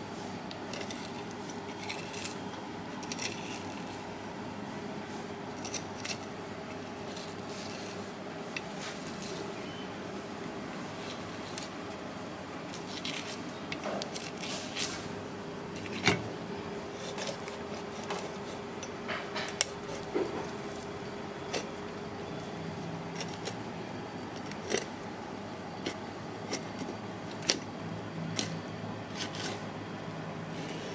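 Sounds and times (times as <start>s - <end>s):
steady background hum: 0.0s - 30.9s
utensils and dishes clinking: 17.0s - 20.6s.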